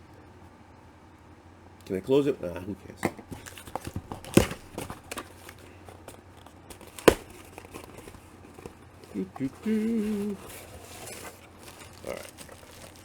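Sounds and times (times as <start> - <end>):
packaging crinkling and rustling: 3.2 - 13.0.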